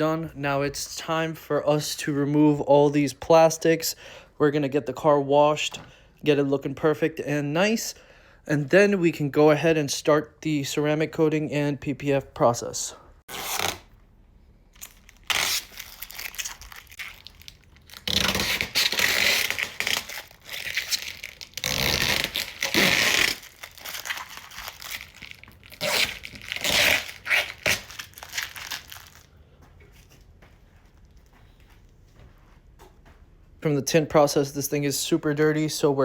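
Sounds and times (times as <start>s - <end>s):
plastic wrapping tearing and crinkling: 14.7s - 29.3s.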